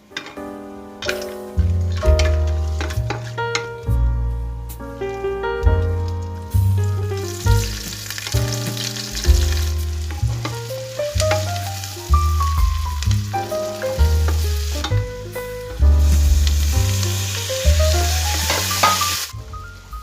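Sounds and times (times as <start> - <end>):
background music: 0.0 - 20.0
food sizzling in hot oil: 1.1 - 3.4, 6.4 - 20.0.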